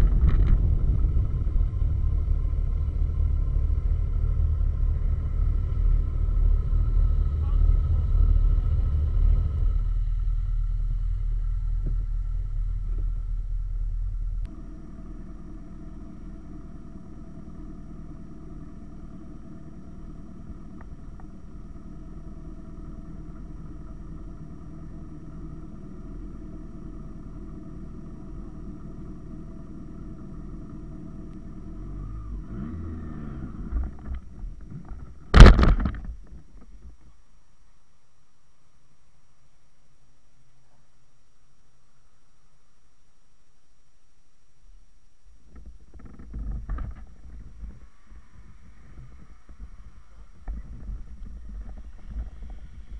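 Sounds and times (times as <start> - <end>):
loud motorcycle engine and wind: 0.0 - 10.7
quiet engine drone: 0.0 - 52.9.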